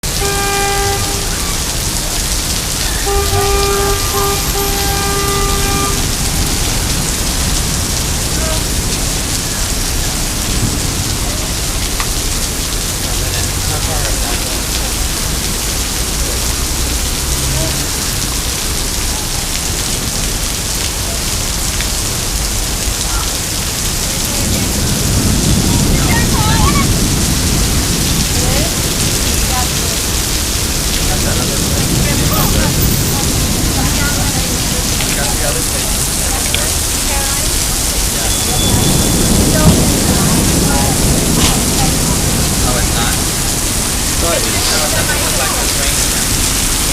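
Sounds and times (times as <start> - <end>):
heavy rain pouring: 0.0 - 46.9.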